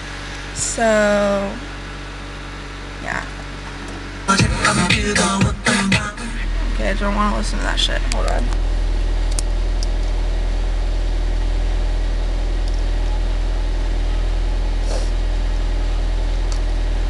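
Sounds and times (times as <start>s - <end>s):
car engine idling: 3.4s - 17.0s.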